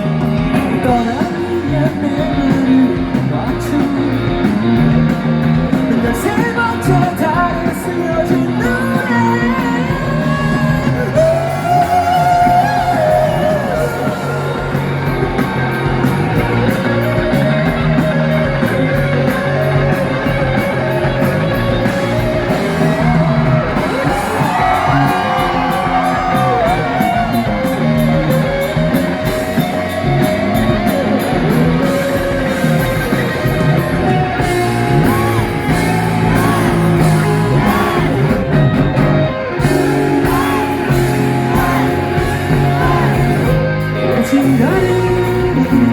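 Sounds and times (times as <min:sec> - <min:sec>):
bass: 0:00.0 - 0:45.9
drums: 0:00.0 - 0:45.9
electric guitar lines: 0:00.0 - 0:45.9.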